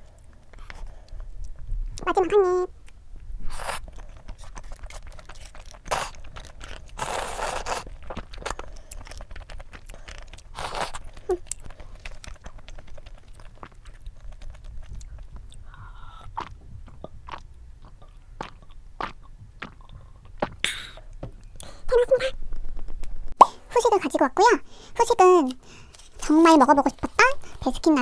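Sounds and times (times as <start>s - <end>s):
person chewing noodles: 2.8s - 21.8s.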